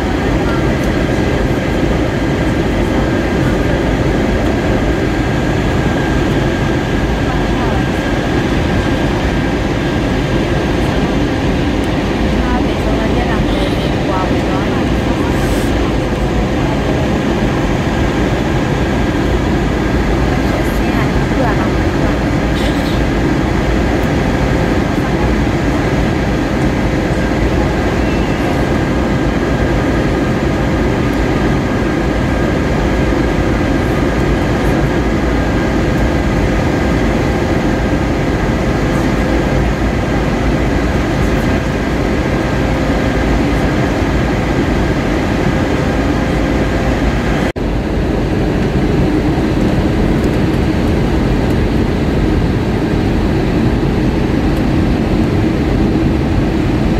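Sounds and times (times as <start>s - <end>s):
airplane cabin roar: 0.0s - 56.9s.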